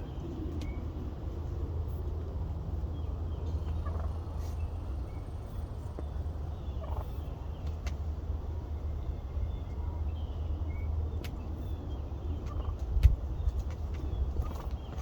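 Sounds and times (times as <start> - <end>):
steady low rumble: 0.0 - 15.0
distant turkey gobbling: 3.6 - 4.6, 6.6 - 7.3, 12.4 - 12.9, 14.4 - 15.0.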